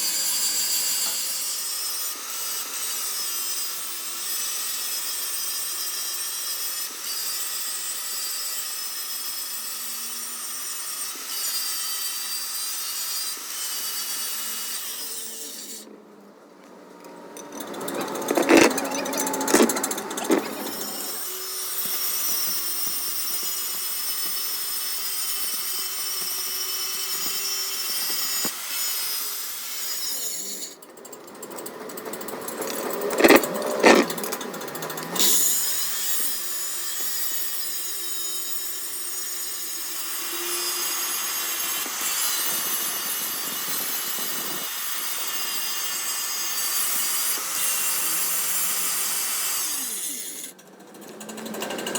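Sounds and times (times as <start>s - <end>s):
lathe cutting metal: 17.5s - 21.8s, 32.7s - 36.3s.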